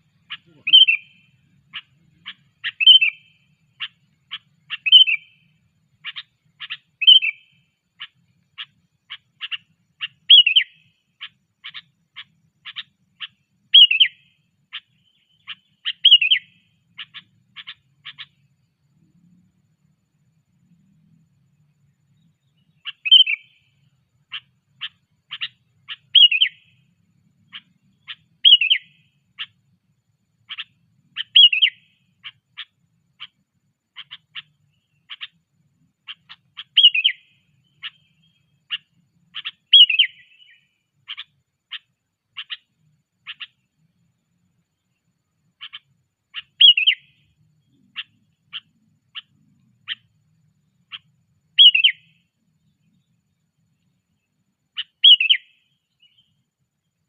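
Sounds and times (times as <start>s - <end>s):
bird whistled call: 0.3s - 1.9s, 2.6s - 5.4s, 6.1s - 7.5s, 9.4s - 10.9s, 12.7s - 14.2s, 15.1s - 18.3s, 22.7s - 23.6s, 24.3s - 26.7s, 28.1s - 29.5s, 30.5s - 32.4s, 36.1s - 38.8s, 39.4s - 41.8s, 46.4s - 47.2s, 51.5s - 52.2s, 54.8s - 56.3s.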